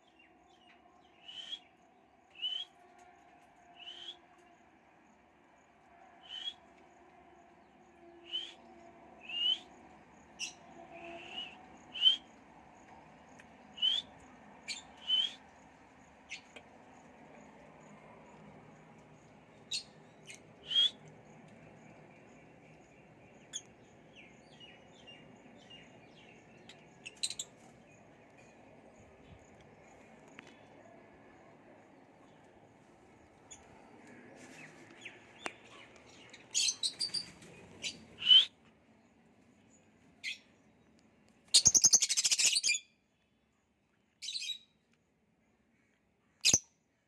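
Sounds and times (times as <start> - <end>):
lovebirds chirping: 22.0 - 30.7.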